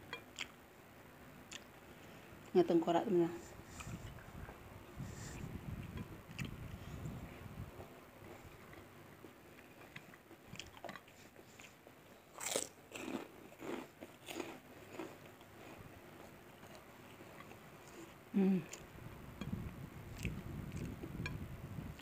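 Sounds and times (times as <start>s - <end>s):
crunchy chewing of fried fish: 7.7s - 18.9s, 20.1s - 21.2s.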